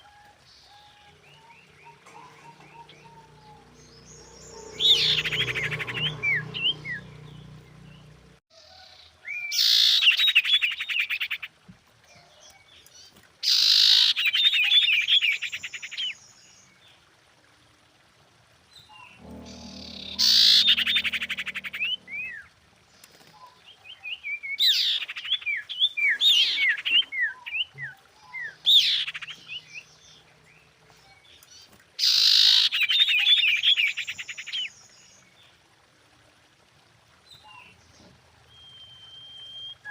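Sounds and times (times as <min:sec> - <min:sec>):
bird buzzy trill: 0:19.2 - 0:22.5
bird down-slurred whistles: 0:38.6 - 0:39.9.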